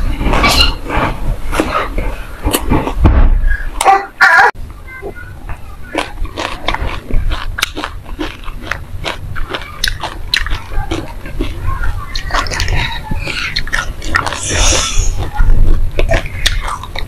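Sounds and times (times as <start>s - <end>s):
crunching and chewing seeds: 5.5s - 17.0s.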